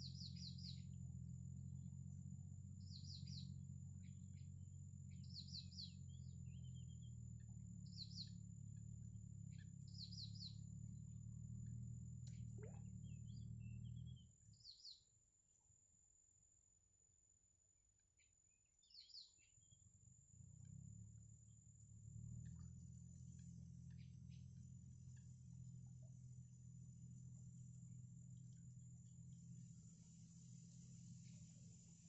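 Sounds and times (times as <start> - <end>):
bird chirping: 0.0 - 1.0, 2.8 - 15.1, 18.2 - 19.9, 22.4 - 25.4, 30.4 - 32.0
low steady hum: 0.0 - 32.0.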